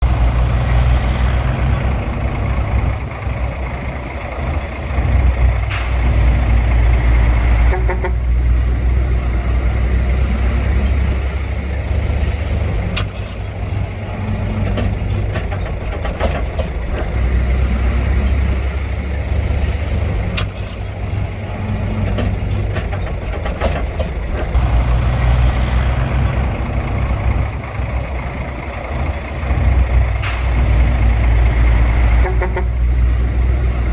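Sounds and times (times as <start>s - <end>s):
heavy diesel machinery engine: 0.0s - 33.9s
sharp metallic clanks: 12.7s - 17.2s, 20.1s - 24.6s.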